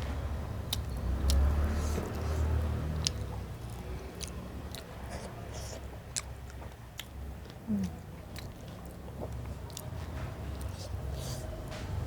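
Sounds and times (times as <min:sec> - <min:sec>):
wet lip-smacking clicks: 0:00.7 - 0:02.4, 0:03.0 - 0:04.9
person chewing: 0:00.7 - 0:11.6.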